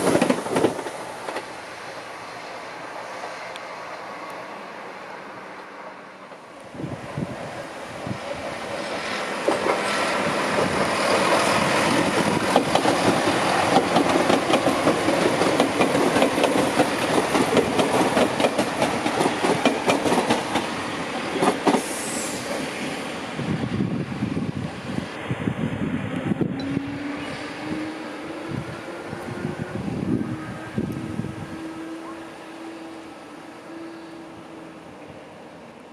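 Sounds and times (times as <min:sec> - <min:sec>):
train wheels clicking over rails: 0:00.0 - 0:01.7, 0:08.2 - 0:23.1
high wheel squeal: 0:26.6 - 0:28.6.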